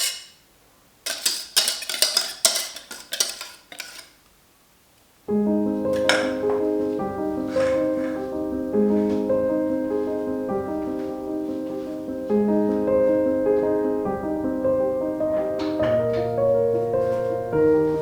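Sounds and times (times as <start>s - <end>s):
soft solo piano chords: 5.3s - 18.0s.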